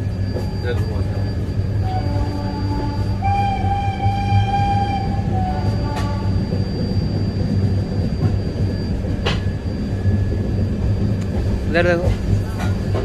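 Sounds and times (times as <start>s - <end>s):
train wheels rumbling on rails: 0.0s - 13.0s
train horn: 1.8s - 6.6s.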